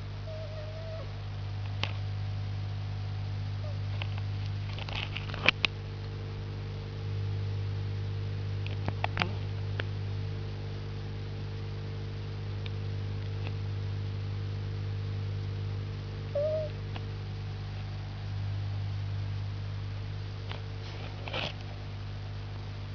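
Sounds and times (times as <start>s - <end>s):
steady low hum: 0.0s - 22.9s
cat chirping: 16.4s - 16.8s.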